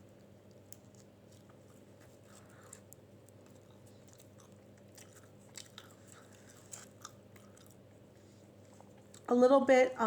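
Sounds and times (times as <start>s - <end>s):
low steady hum: 0.0s - 10.0s
wet mouth clicks chewing: 0.5s - 7.9s.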